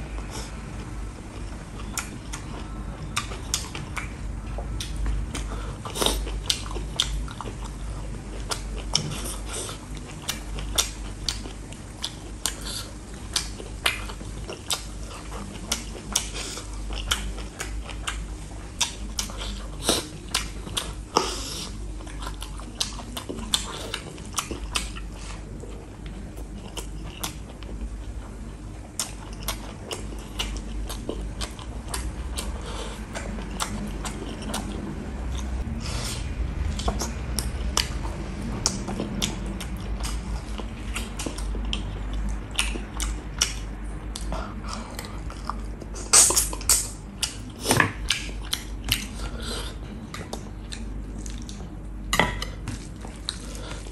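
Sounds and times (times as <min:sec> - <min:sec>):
person chewing food: 0:00.1 - 0:53.9
sharp mouth clicks and smacks: 0:45.8 - 0:49.2.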